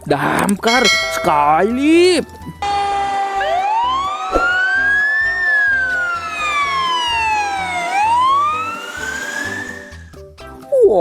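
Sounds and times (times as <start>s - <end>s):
wailing fire engine siren: 2.6s - 10.2s.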